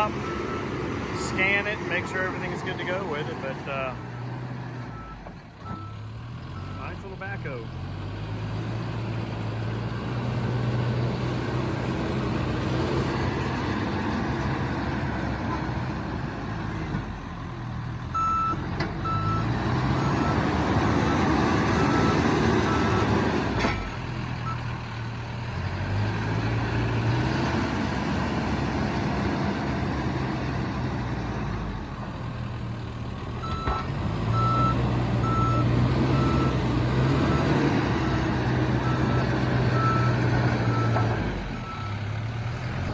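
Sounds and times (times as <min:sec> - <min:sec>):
backhoe diesel engine revving: 0:00.0 - 0:42.9
reverse alarm beeps: 0:18.2 - 0:19.4, 0:33.4 - 0:36.6.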